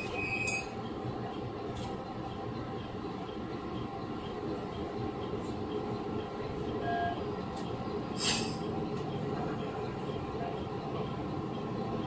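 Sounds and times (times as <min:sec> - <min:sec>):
train interior rumble and hum: 0:00.0 - 0:12.0
compressed air hiss: 0:08.2 - 0:08.6.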